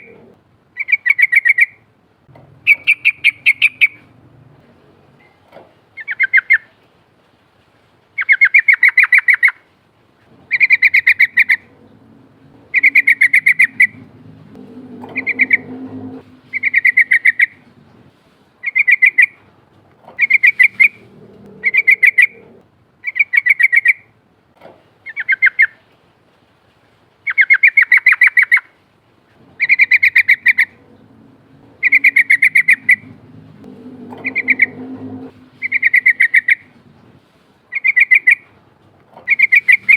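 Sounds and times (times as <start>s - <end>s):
bird rattling trills: 10.5s - 19.3s, 20.2s - 23.9s, 29.6s - 38.4s, 39.3s - 39.9s.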